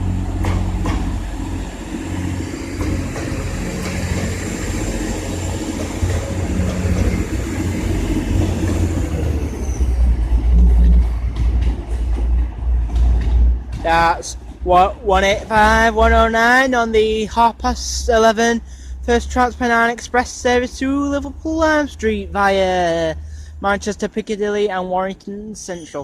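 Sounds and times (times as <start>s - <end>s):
train diesel engine drone: 0.0s - 26.0s.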